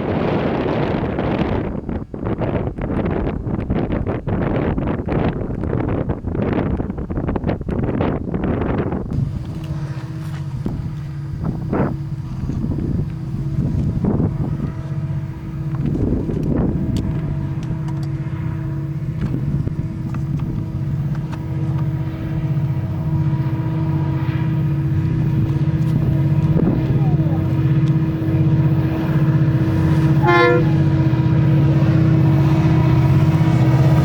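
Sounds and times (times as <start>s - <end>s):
diesel locomotives droning: 0.0s - 34.0s
train horn toot: 9.2s - 20.0s, 20.7s - 34.0s.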